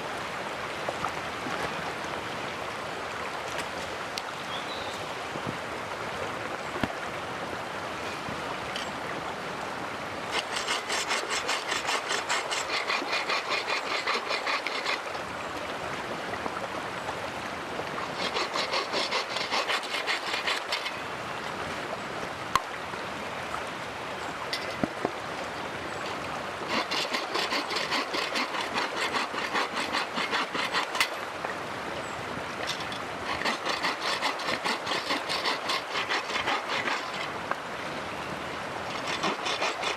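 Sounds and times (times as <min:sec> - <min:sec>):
bow saw cutting wood: 0:10.3 - 0:15.2, 0:18.0 - 0:21.0, 0:26.6 - 0:31.2, 0:32.6 - 0:37.4, 0:38.9 - 0:39.9.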